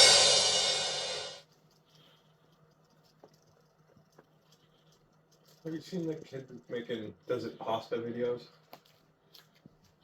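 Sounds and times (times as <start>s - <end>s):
crash cymbal ringing: 0.0s - 1.4s.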